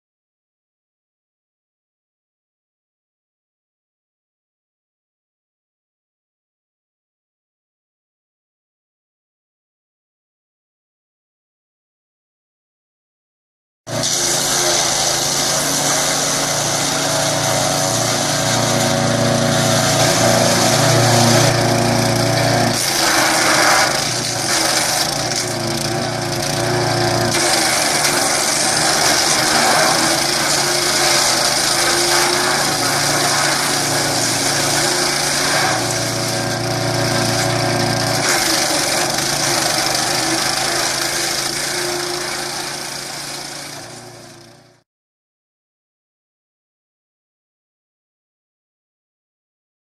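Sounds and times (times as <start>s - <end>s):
wood shredding: 13.9s - 44.7s
wood chipper engine running: 13.9s - 44.8s.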